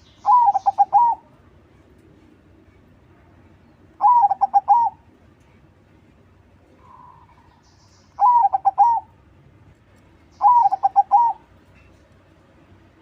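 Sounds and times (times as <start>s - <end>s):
dove cooing: 0.0s - 1.3s, 4.0s - 5.0s, 8.2s - 9.1s, 10.4s - 11.5s
dove song rolling coos: 0.0s - 1.4s, 3.9s - 5.1s, 6.8s - 9.2s, 10.3s - 11.6s.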